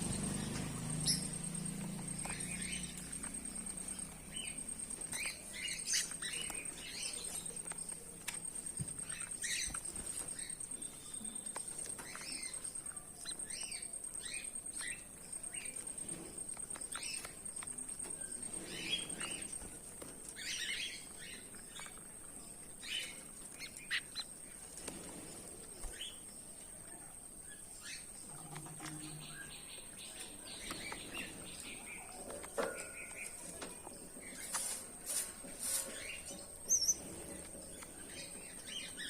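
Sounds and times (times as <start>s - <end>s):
finches chirping: 0.0s - 19.7s, 35.4s - 39.0s.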